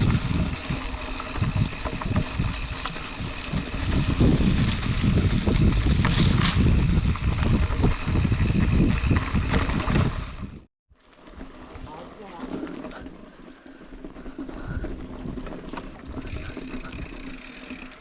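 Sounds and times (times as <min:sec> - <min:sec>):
wind buffeting microphone: 0:00.0 - 0:10.7
bike tyres rumbling on dirt: 0:00.0 - 0:18.0
bike knocks and rattles: 0:14.3 - 0:18.0.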